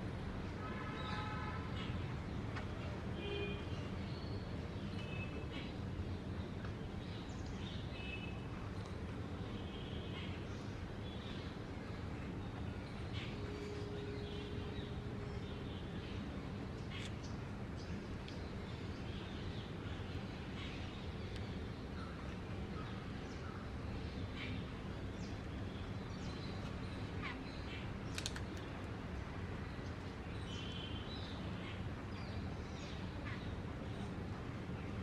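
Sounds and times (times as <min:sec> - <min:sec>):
small birds chirping: 0:29.7 - 0:34.1.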